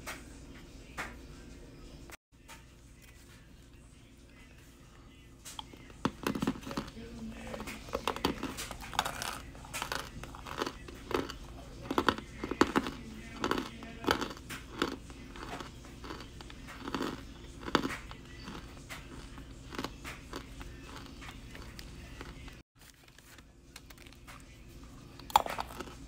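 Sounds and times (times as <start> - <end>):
crunchy chewing: 5.5 - 26.0.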